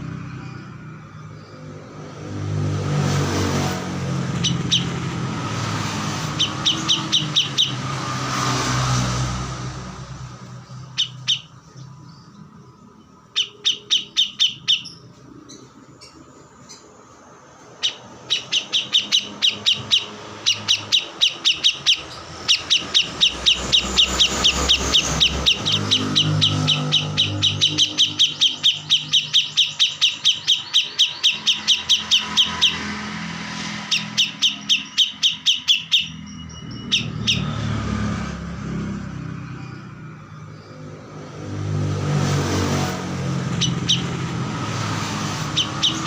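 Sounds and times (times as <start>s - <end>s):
vehicle engine rumble: 0.0s - 13.3s, 36.0s - 46.0s
bird chirping rapidly: 0.0s - 46.0s
bird whistle: 4.4s - 5.0s, 6.1s - 8.0s, 10.9s - 11.6s, 13.3s - 15.0s, 17.8s - 37.6s, 43.5s - 44.2s, 44.9s - 46.0s.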